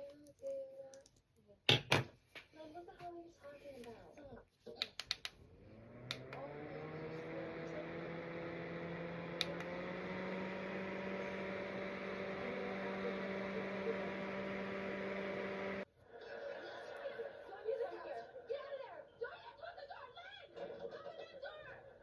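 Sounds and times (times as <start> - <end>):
small electric motor humming: 5.6 - 15.9.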